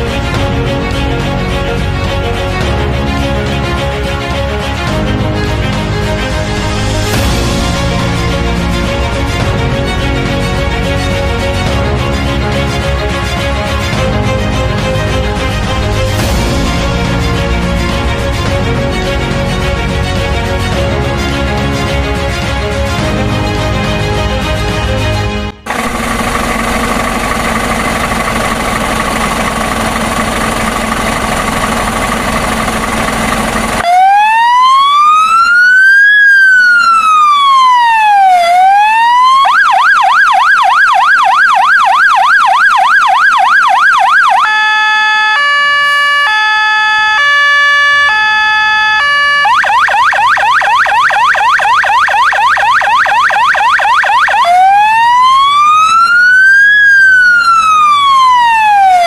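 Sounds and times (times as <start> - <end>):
fire engine siren: 6.6 - 11.8, 25.5 - 59.0.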